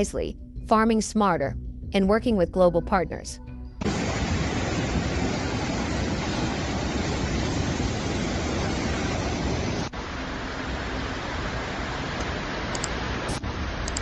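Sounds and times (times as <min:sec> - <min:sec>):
floodwater rushing: 0:03.8 - 0:13.8.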